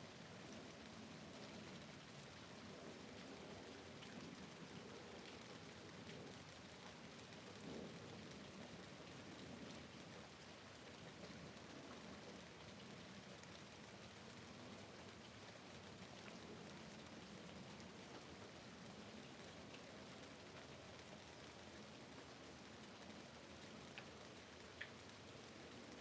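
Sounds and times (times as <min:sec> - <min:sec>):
faint rain: 0:00.0 - 0:26.0.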